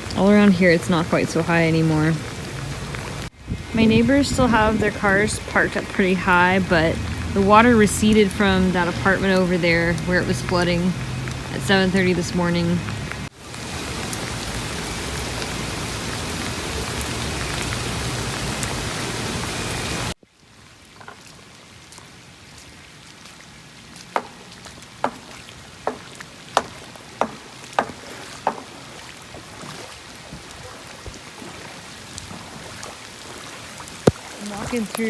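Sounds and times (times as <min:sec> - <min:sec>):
rain falling: 0:00.0 - 0:35.0
sharp taps: 0:24.2 - 0:28.8.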